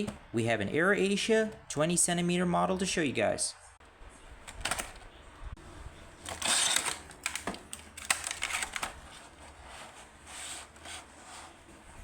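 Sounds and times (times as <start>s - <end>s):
plastic packaging rustling: 6.2s - 10.8s.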